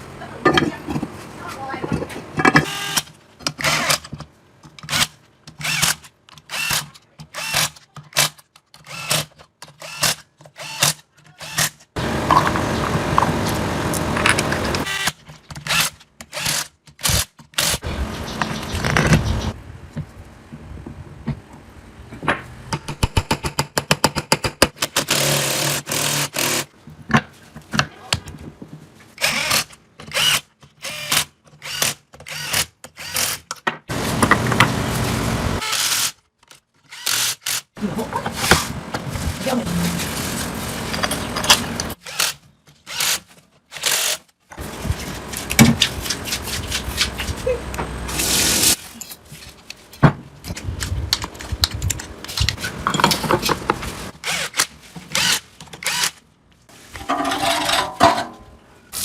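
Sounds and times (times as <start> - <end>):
power tool running: 11.5 - 17.9.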